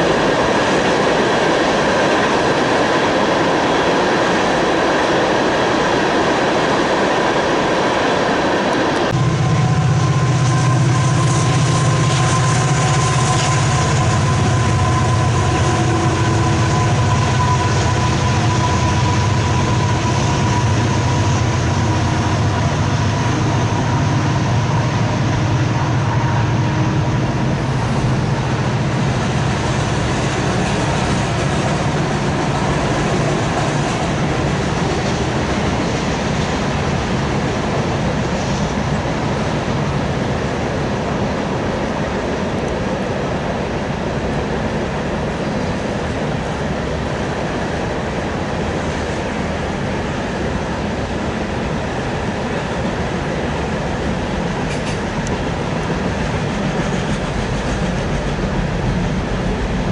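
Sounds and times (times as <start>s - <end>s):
diesel locomotive engines: 0.0s - 59.9s
rail cars rolling: 0.0s - 59.9s
steady high tone: 9.0s - 28.9s.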